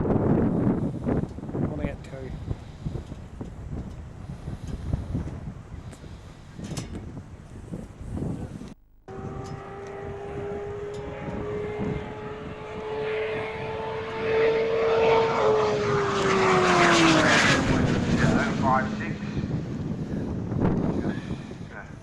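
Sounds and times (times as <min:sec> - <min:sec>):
fast vehicle passing by: 0:09.1 - 0:22.0.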